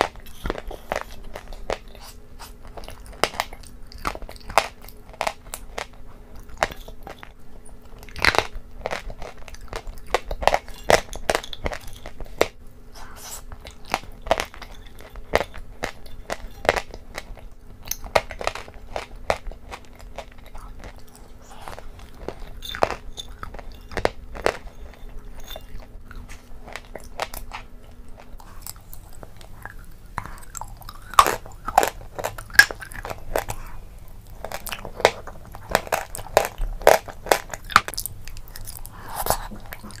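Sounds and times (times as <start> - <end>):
chewing and crunching food: 0.0 - 40.0
faint background hum: 0.0 - 40.0.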